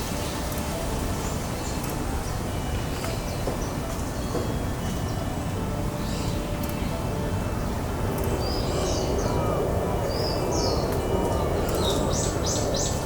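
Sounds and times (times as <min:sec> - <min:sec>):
birds calling high notes: 0:00.1 - 0:13.0.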